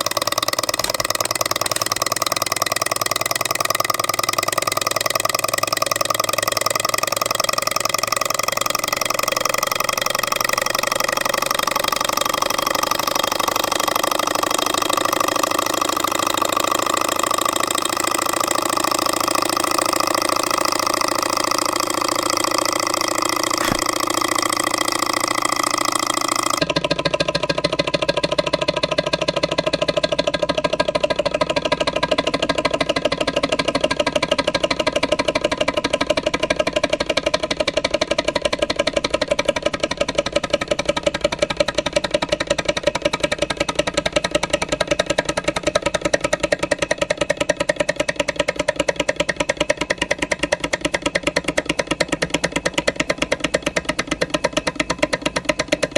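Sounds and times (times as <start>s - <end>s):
fast rhythmic clatter: 0.0s - 26.7s
stirling engine running: 0.0s - 26.7s.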